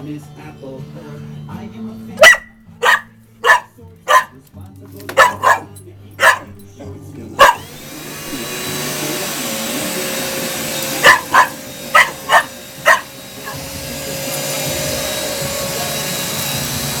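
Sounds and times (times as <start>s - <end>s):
dog barking: 2.2s - 4.4s, 5.1s - 6.6s, 7.4s - 7.8s, 10.9s - 13.7s
vacuum cleaner motor running: 7.4s - 17.0s.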